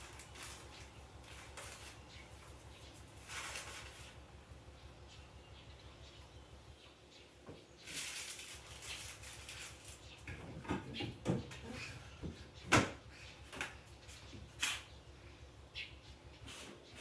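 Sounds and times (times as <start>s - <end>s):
rustling or rubbing: 0.0s - 4.3s, 7.8s - 10.2s.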